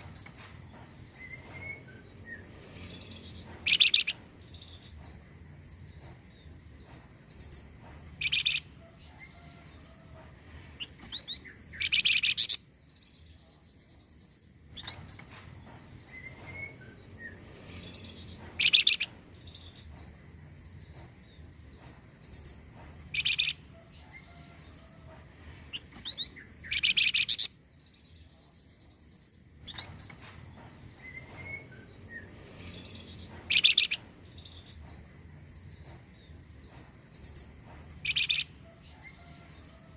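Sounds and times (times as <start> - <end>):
recorded bird calls: 0.0 - 4.9, 8.2 - 10.1, 10.8 - 12.7, 16.0 - 20.0, 22.4 - 25.0, 25.7 - 27.6, 28.2 - 34.9, 38.0 - 39.9.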